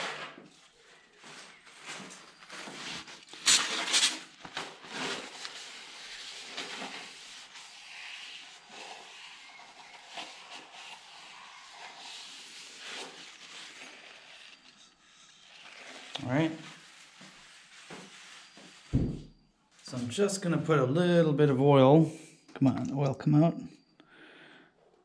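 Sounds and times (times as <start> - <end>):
towel wiping and rubbing: 1.2 - 20.6.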